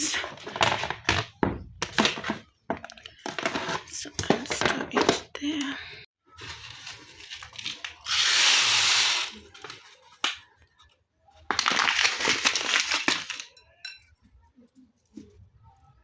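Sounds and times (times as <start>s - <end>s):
plastic bag rustling: 6.3s - 10.2s, 11.5s - 13.5s.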